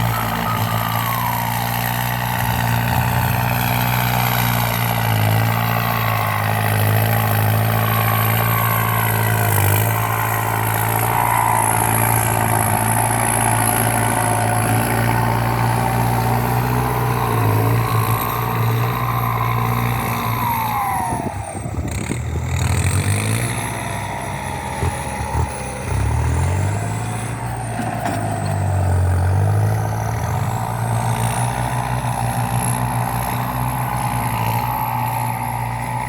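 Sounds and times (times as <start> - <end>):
tractor diesel engine working hard: 0.0 - 36.0.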